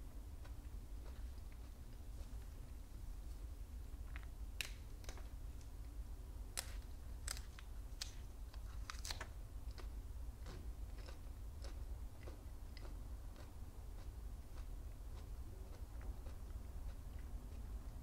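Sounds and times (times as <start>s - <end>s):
petals being chewed crunching: 0.4s - 2.8s, 6.6s - 18.0s.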